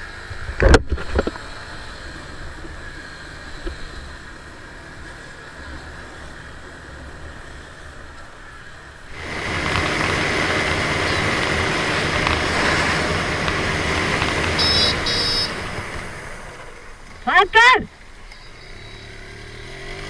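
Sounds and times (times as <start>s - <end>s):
motorcycle engine: 0.0s - 20.0s
short high-pitched beeps: 14.6s - 15.5s.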